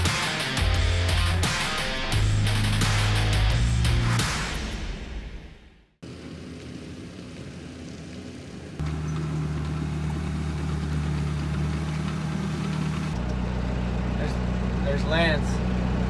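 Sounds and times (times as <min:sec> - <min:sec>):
engine idling: 0:06.0 - 0:16.0.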